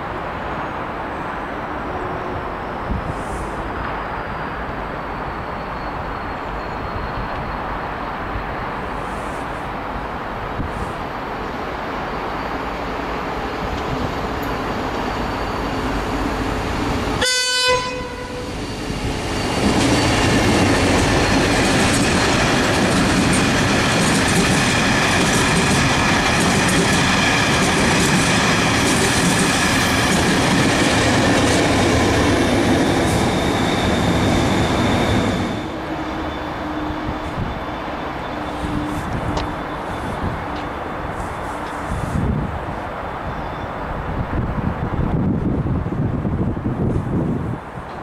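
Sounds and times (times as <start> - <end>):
train horn blast: 17.2 - 18.6
train wheels clattering: 18.9 - 35.6.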